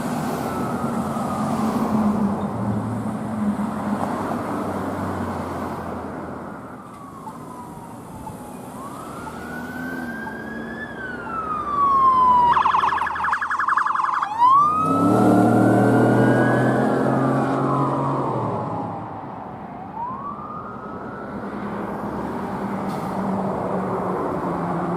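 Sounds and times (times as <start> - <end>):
emergency siren wailing: 0.0 - 2.8, 6.4 - 22.4.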